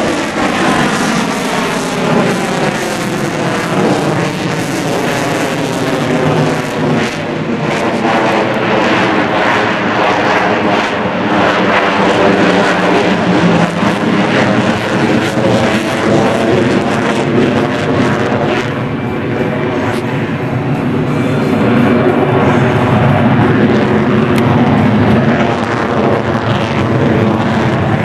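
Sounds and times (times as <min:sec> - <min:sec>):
jet engines roaring: 0:00.0 - 0:28.0.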